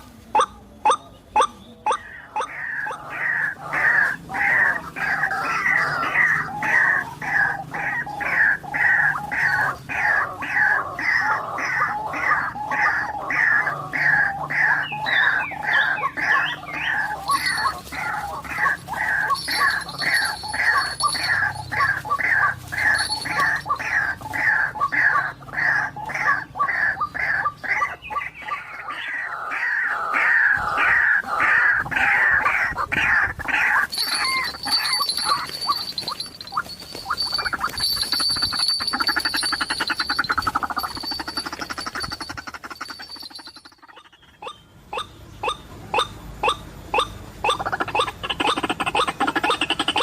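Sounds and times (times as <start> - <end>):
bird calling falling notes: 12.0 - 25.2, 33.6 - 50.0.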